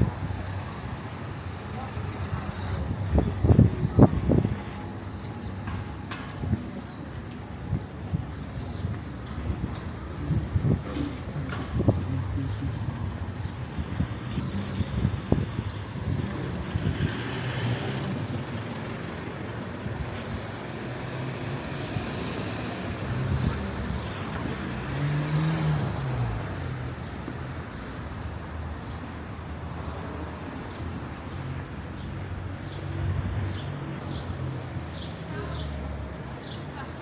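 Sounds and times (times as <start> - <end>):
vehicles passing: 0.0 - 37.0.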